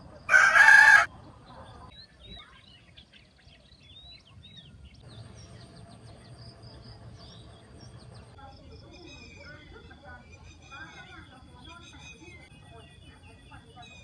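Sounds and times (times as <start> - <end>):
birds chirping: 0.0 - 14.0
faint outdoor background: 0.0 - 14.0.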